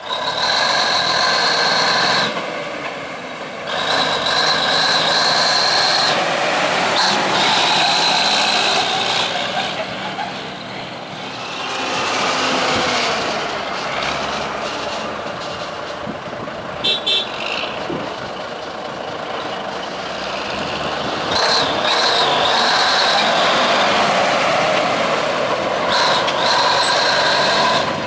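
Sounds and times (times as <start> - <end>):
diesel truck engine running: 0.0 - 28.0
truck horn toots: 16.8 - 17.8, 21.3 - 24.2.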